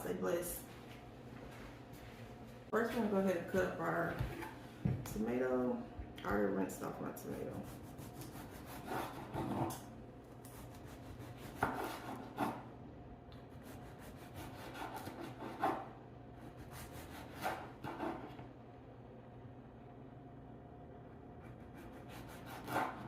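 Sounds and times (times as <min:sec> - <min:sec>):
knife sawing through tomato: 0:07.6 - 0:09.8, 0:10.5 - 0:12.6, 0:13.5 - 0:18.4, 0:21.4 - 0:23.0.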